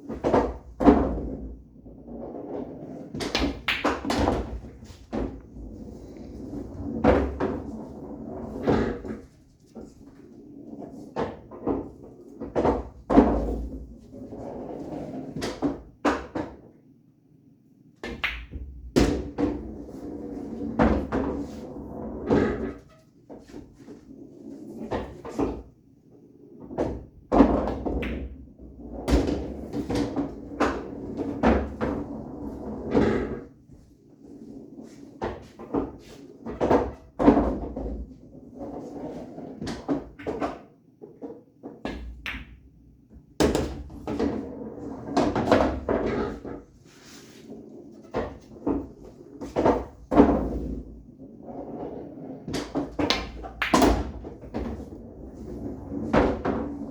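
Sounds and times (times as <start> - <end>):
balls rolling through ball return: 0.1 - 16.6, 18.0 - 56.9
pool balls clacking: 2.2 - 9.9, 18.0 - 22.8, 26.6 - 33.5, 38.8 - 42.8, 51.8 - 56.9.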